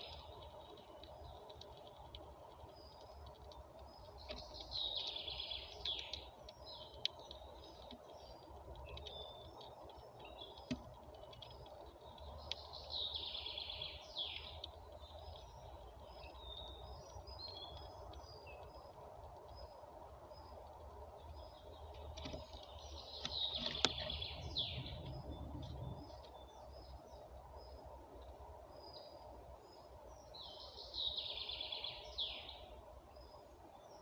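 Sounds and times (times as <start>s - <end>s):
songbird singing: 0.0s - 34.0s
sharp clicks: 21.9s - 24.3s.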